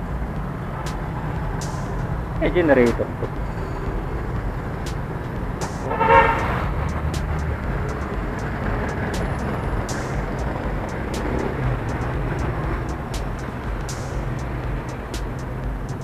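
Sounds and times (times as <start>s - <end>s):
short horn toot: 5.6s - 6.7s.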